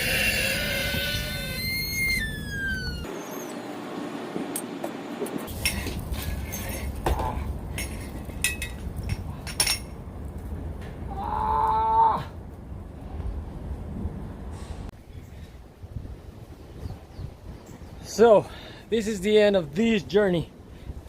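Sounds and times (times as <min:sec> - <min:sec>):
loud squeal: 0:00.0 - 0:03.7
metal clinks and knocks: 0:05.5 - 0:10.0.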